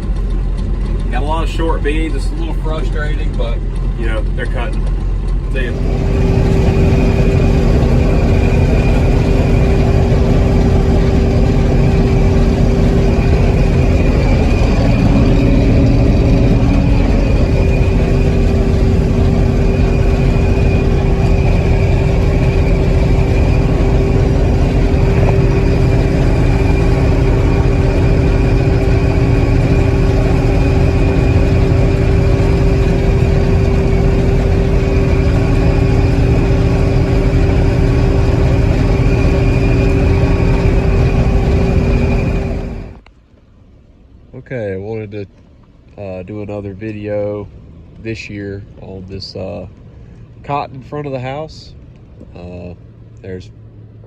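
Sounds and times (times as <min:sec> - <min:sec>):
machinery whine: 0:00.0 - 0:43.1
combine harvester engine drone: 0:00.0 - 0:43.2, 0:45.9 - 0:54.0.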